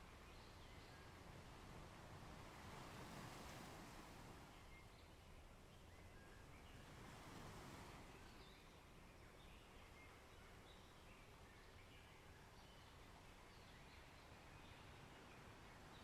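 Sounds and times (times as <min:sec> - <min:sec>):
low steady hiss: 0:00.0 - 0:16.0.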